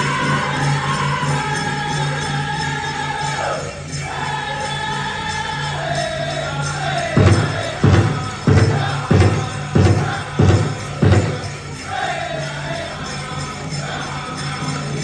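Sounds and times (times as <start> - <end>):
group singing in high voices: 0.0 - 15.0
big drum beats: 7.1 - 11.8.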